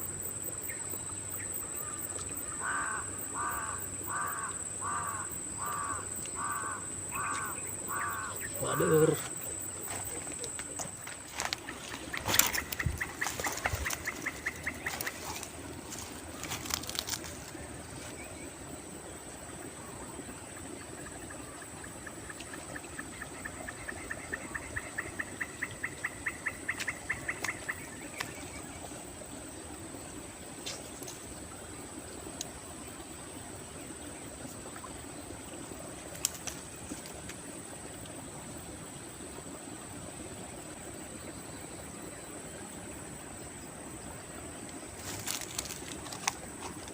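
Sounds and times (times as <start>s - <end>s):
bird calling high pips: 11.5s - 15.5s.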